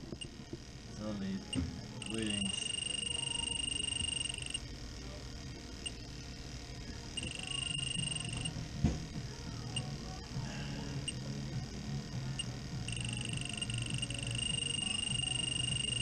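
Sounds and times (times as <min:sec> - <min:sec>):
leak detector alarm tone: 0:01.5 - 0:04.6, 0:07.2 - 0:08.5, 0:12.4 - 0:16.0
leak detector short beeps: 0:02.0 - 0:04.6, 0:07.2 - 0:08.5, 0:12.9 - 0:16.0.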